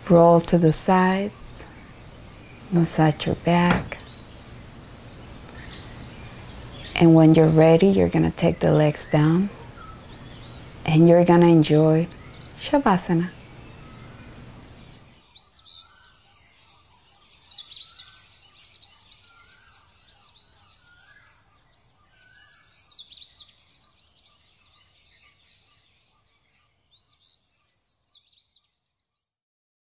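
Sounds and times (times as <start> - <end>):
high downward-sweeping bird chirps: 5.5 - 25.8.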